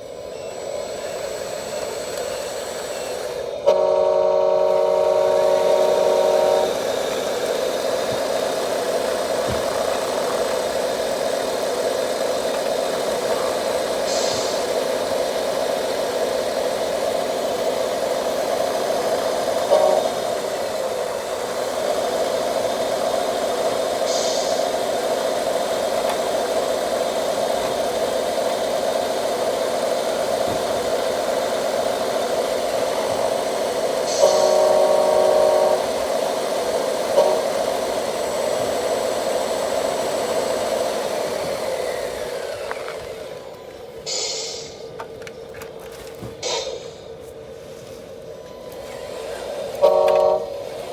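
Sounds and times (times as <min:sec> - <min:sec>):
toy truck engine drone: 0:00.0 - 0:47.0, 0:48.2 - 0:50.9
brief hiss: 0:14.0 - 0:14.7, 0:44.0 - 0:44.9, 0:46.4 - 0:47.1.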